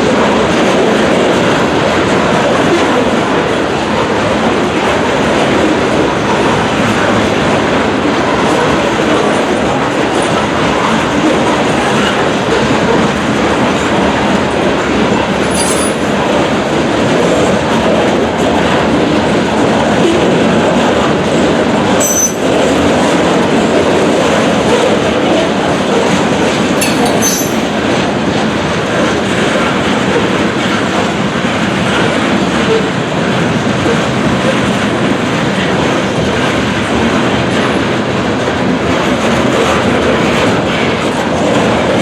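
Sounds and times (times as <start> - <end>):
freight train wheels clattering: 0.0 - 42.0
high wheel squeals: 22.0 - 22.6.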